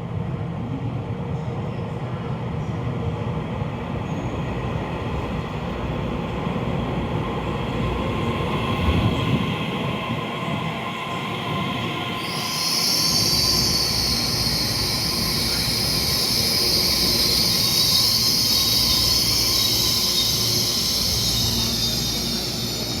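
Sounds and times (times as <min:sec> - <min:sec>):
train wheels rumbling on rail: 0:00.0 - 0:23.0
high-pitched brake squeal: 0:11.4 - 0:23.0.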